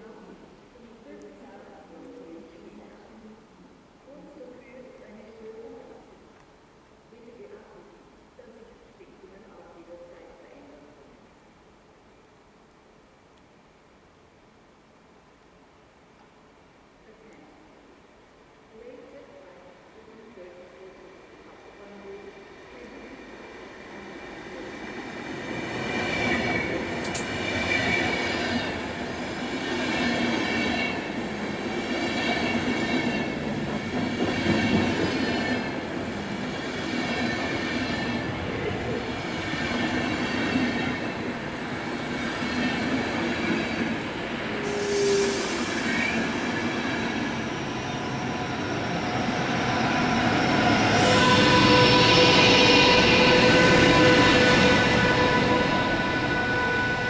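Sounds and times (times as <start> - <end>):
electric locomotive whine: 19.8 - 57.0
high wheel squeal: 47.6 - 57.0.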